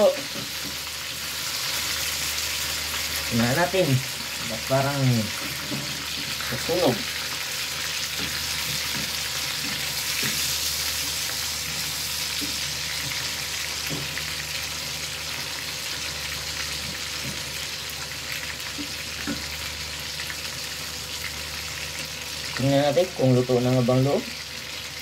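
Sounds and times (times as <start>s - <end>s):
patties frying in oil: 0.0s - 25.0s.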